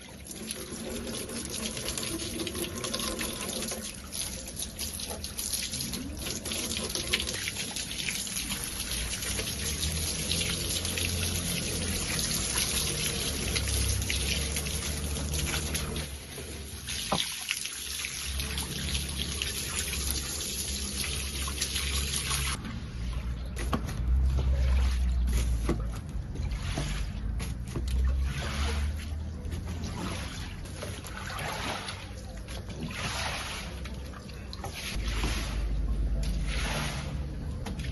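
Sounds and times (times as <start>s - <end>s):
water running and trickling: 0.0s - 22.6s.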